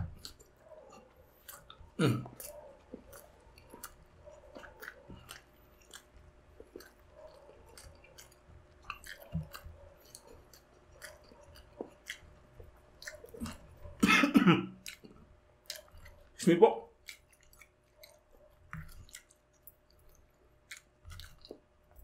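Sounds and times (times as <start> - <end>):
person chewing: 0.0 - 22.0
wet mouth clicks: 1.3 - 12.3, 13.0 - 14.0, 14.8 - 16.3.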